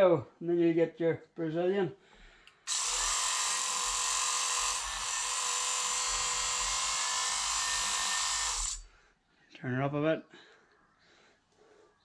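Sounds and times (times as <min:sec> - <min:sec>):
shearing handpiece buzzing whine: 0:02.7 - 0:08.8.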